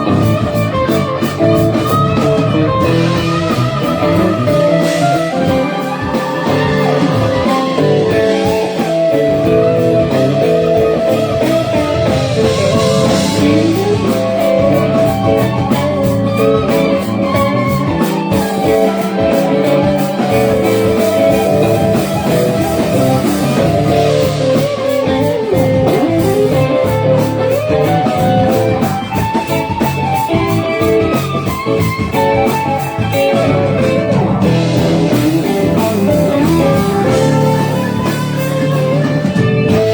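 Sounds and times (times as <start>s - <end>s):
bass guitar: 0.0s - 39.9s
electric guitar: 0.0s - 39.9s
steady beat: 0.0s - 39.9s.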